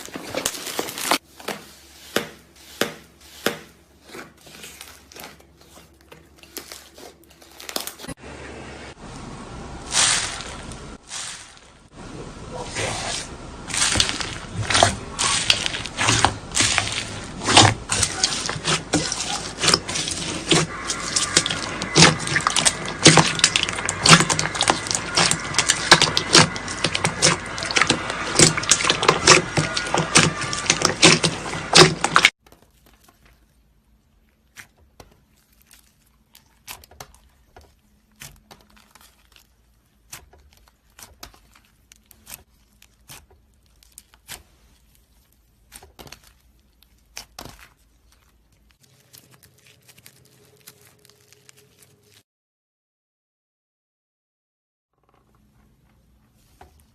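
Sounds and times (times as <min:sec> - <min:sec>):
slime crackling and popping: 0:13.0 - 0:52.2.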